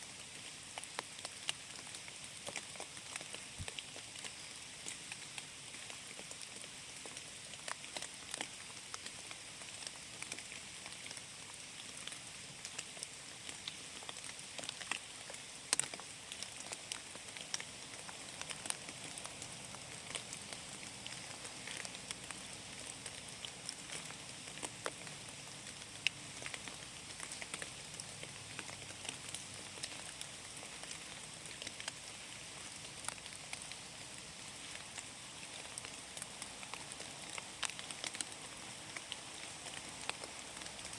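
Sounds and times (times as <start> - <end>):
steady rain hiss: 0.0 - 40.9
raindrops ticking: 11.8 - 40.9.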